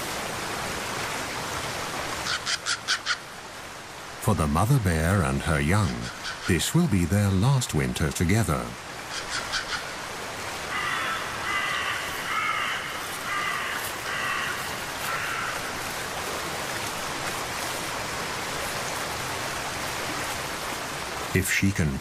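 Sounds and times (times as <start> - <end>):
watery hiss of rain: 0.0 - 22.0
crow cawing: 2.3 - 3.2, 9.1 - 9.9, 10.6 - 15.8.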